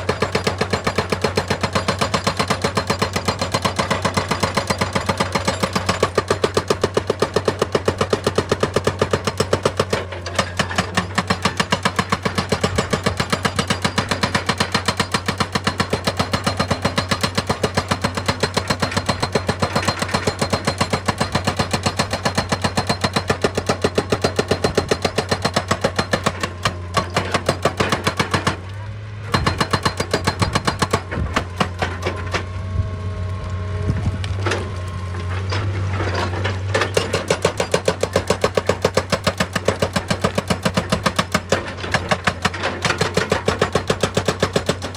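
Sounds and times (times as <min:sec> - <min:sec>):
hydraulic breaker hammering stone: 0:00.0 - 0:28.7, 0:29.3 - 0:32.4, 0:36.1 - 0:44.9
diesel engine hum: 0:28.1 - 0:42.0.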